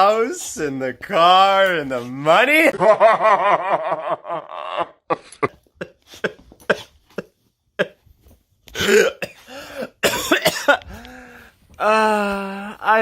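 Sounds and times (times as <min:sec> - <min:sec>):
person coughing: 0:05.8 - 0:08.1, 0:08.7 - 0:10.9.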